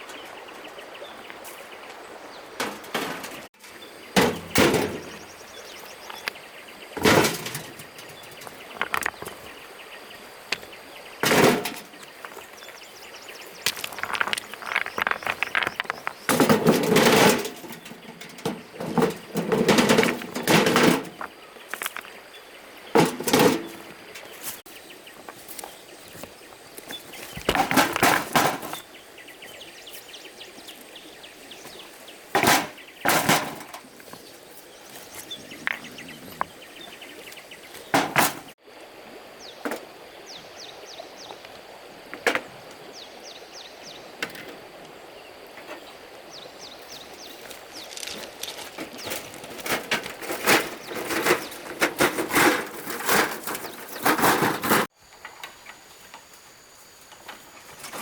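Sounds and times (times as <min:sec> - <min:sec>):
scraping and knocking: 0:02.6 - 0:05.3, 0:07.0 - 0:09.6, 0:10.5 - 0:22.1, 0:22.9 - 0:24.3, 0:27.0 - 0:28.9, 0:32.3 - 0:34.3, 0:47.8 - 0:54.9.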